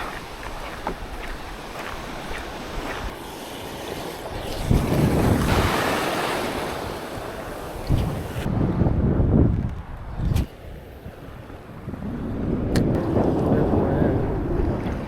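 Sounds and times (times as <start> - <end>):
wave breaking and washing out: 0.0 - 9.2, 10.2 - 15.0
wind buffeting microphone: 4.2 - 15.0.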